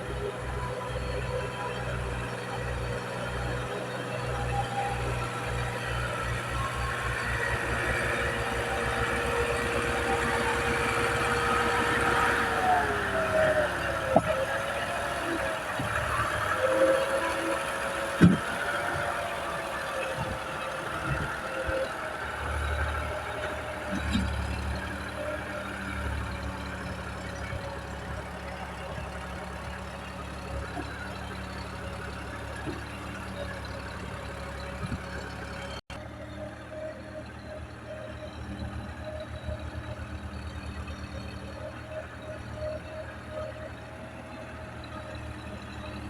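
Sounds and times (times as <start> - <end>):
tractor engine under load: 0.0 - 46.0.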